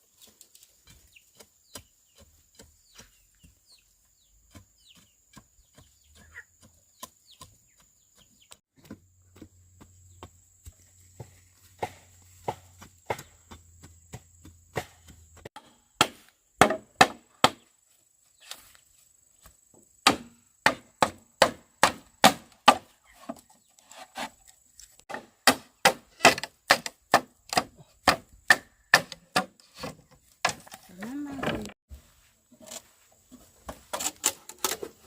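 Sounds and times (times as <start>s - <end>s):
bamboo chopped with a blade: 14.1s - 17.7s, 20.0s - 23.4s, 25.1s - 31.0s.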